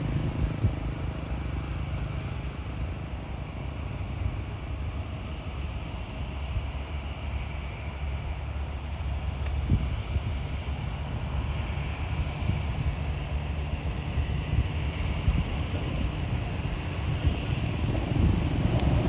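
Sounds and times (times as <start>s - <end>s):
turboprop engines droning: 0.0s - 19.0s
low rumble: 14.4s - 19.0s.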